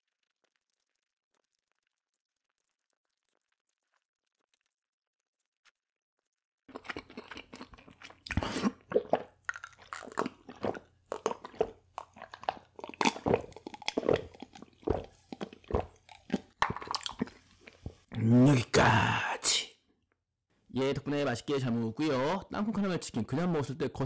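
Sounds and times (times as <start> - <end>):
crunchy food chewing: 6.3 - 18.1.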